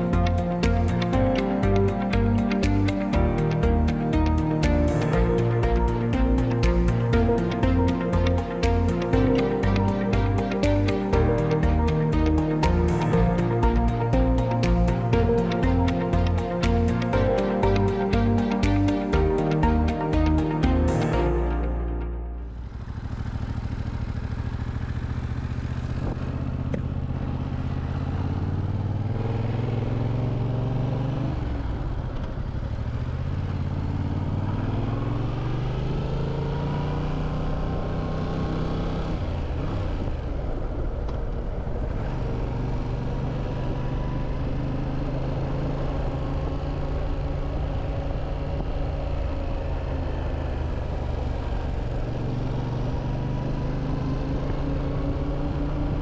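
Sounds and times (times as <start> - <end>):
motorcycle engine running: 0.0 - 21.7, 22.3 - 56.0.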